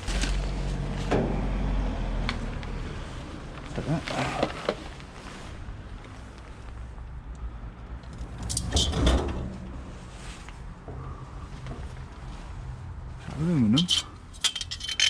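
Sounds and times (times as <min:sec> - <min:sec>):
scrap metal clattering: 0:08.4 - 0:10.4, 0:13.3 - 0:15.0.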